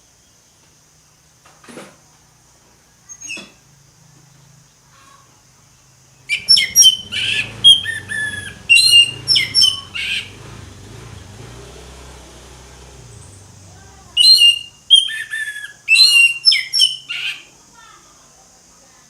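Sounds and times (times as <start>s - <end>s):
thrush singing: 6.3s - 17.5s.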